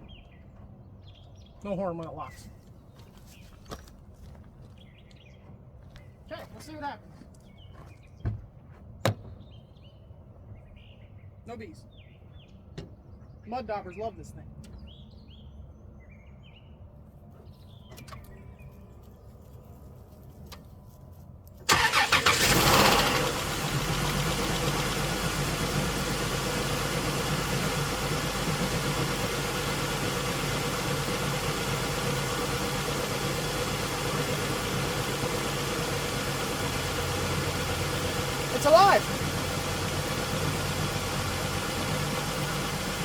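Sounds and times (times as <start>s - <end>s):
car engine cranking: 21.7s - 43.0s
car engine idling with misfire: 21.7s - 43.0s.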